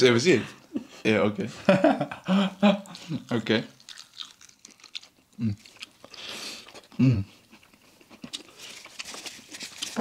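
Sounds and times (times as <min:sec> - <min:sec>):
chewing and crunching: 0:03.7 - 0:10.0.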